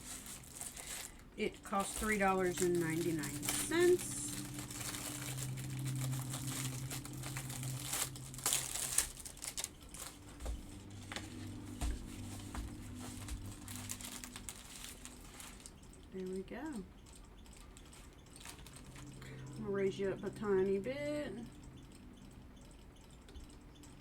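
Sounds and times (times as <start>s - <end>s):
plastic packaging crinkling: 0.0s - 16.1s, 17.5s - 20.5s
faint low hum: 0.0s - 24.0s.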